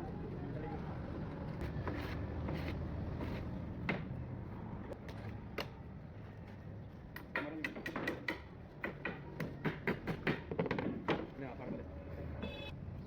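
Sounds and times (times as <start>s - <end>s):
sharp knocks and clicks: 7.2s - 11.3s.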